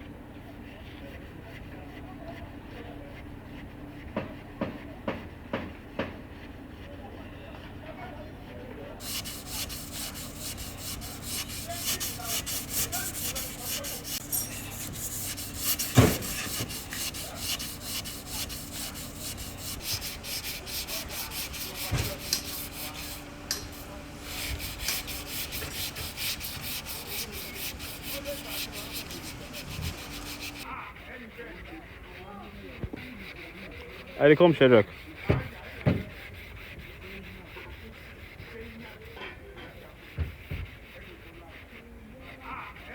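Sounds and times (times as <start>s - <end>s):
abrasive scraping strokes: 9.0s - 30.7s.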